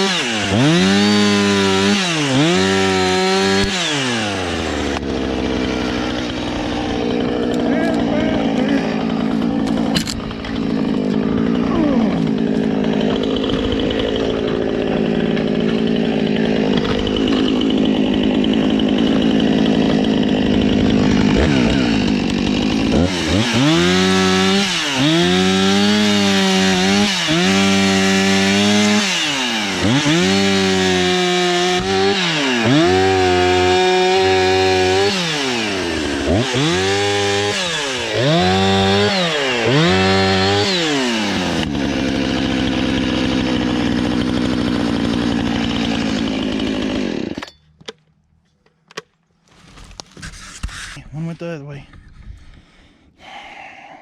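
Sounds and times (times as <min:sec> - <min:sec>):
chainsaw revving: 0:00.0 - 0:47.5.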